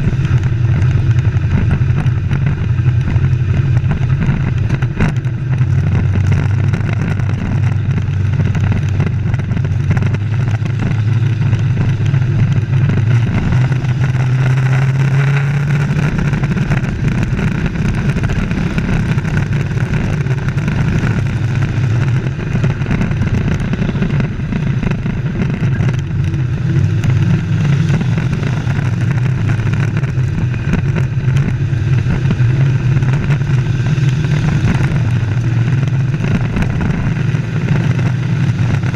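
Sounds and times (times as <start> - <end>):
race truck engines drone: 0.0 - 38.9.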